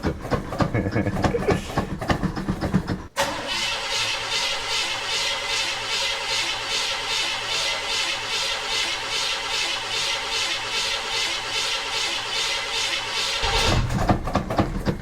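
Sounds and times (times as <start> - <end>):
car starter cranking engine: 0.0 - 15.0.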